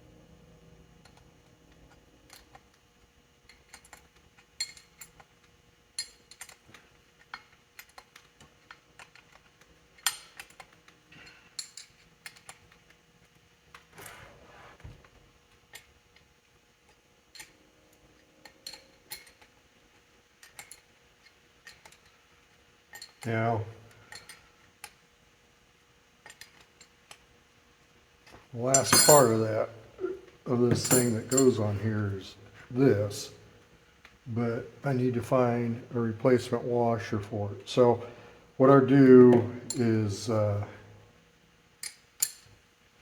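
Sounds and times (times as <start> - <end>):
metal tools clinking: 28.7 - 29.6, 30.5 - 31.8, 39.7 - 40.0.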